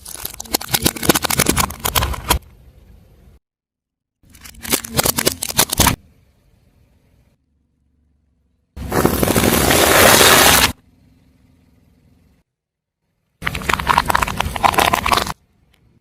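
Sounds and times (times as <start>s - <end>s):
tyre crushing brittle objects: 0.0s - 2.3s.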